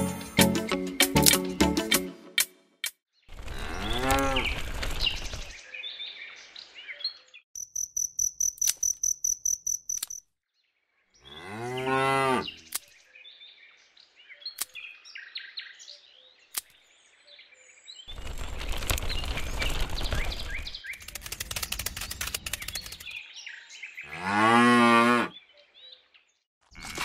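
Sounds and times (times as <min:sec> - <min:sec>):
cow mooing: 0:03.5 - 0:04.5, 0:11.3 - 0:12.7, 0:24.1 - 0:25.3
fast high-pitched chirping: 0:07.6 - 0:10.2.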